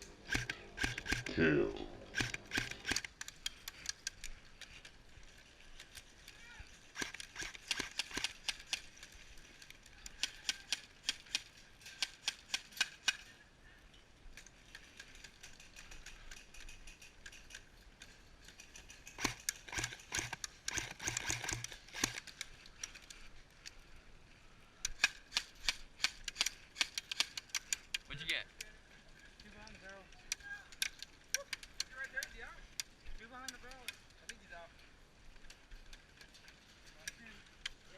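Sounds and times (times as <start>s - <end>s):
airsoft guns firing: 0.2s - 1.4s, 2.1s - 3.8s, 7.0s - 8.8s, 19.0s - 22.3s.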